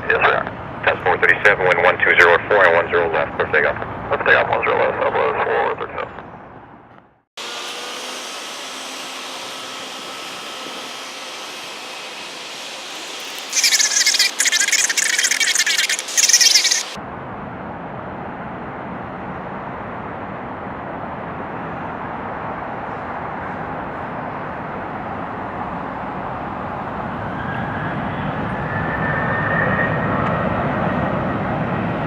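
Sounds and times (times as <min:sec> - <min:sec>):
distant jet engine noise: 0:00.0 - 0:32.0
loud high-pitched chirping: 0:13.0 - 0:17.0.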